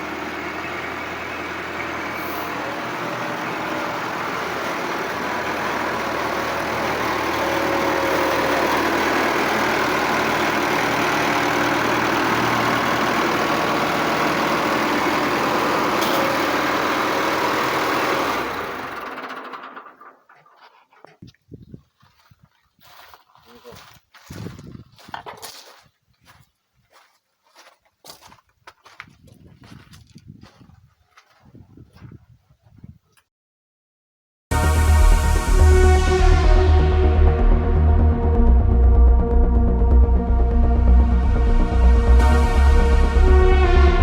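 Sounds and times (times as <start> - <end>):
tractor diesel engine running: 0.0 - 20.9, 34.5 - 44.0.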